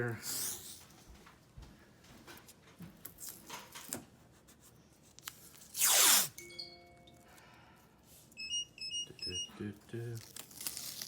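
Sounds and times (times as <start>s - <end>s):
tape ripped off roll: 5.7s - 6.4s
tape crackling: 10.0s - 11.0s.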